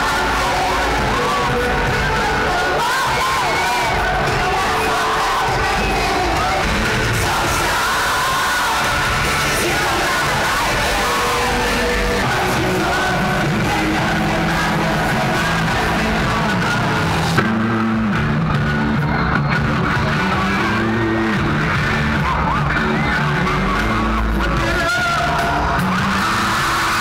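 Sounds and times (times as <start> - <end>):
crowd yelling and singing: 0.0 - 27.0
live rock band: 0.0 - 27.0.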